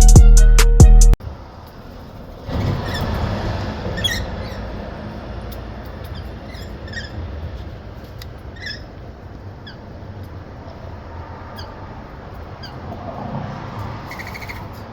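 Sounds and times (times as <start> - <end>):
birds chirping and squeaking: 2.5 - 10.5, 11.3 - 14.9.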